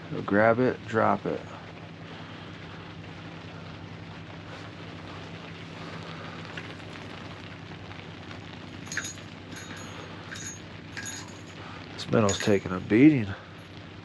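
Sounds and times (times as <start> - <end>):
rain falling: 0.0 - 14.0
faint low hum: 8.7 - 13.8
light metallic clinks: 8.7 - 13.8.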